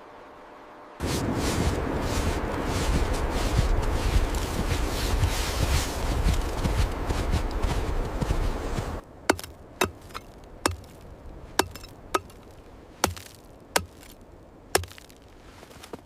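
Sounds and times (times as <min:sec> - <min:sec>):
steady rushing noise: 0:00.0 - 0:14.9
sharp chopping blows: 0:09.3 - 0:11.0, 0:11.6 - 0:14.2, 0:14.8 - 0:15.2.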